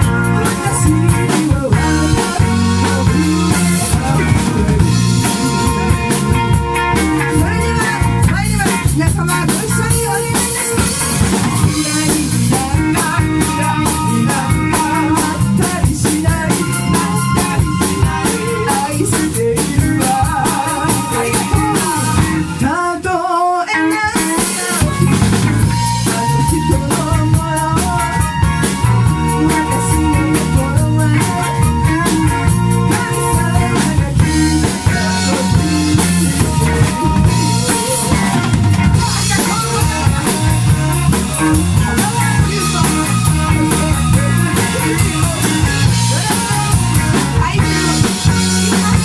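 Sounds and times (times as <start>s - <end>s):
bass drum: 0.0s - 22.6s, 24.8s - 49.0s
live band playing a song: 0.0s - 49.0s.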